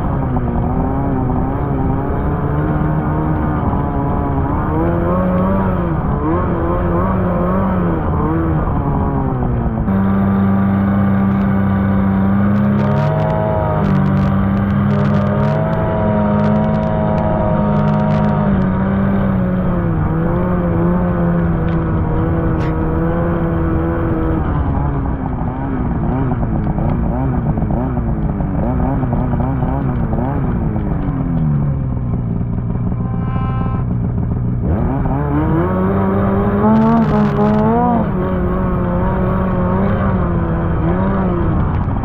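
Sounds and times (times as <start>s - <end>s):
snowmobile engine running: 0.0s - 42.0s.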